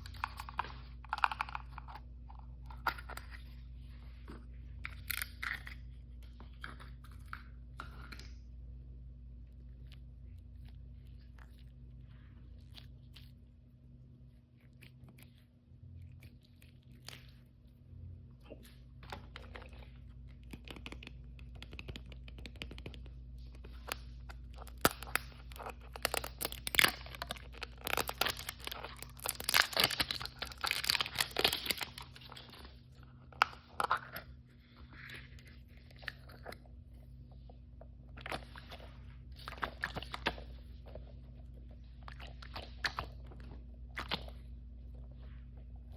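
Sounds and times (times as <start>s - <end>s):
faint low hum: 0.0s - 45.9s
packaging torn and crinkled: 24.6s - 32.7s.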